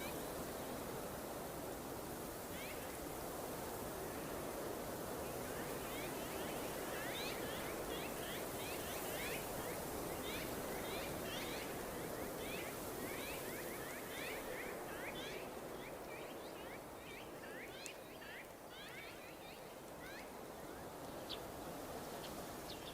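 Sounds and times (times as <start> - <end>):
birds chirping: 5.3 - 21.5.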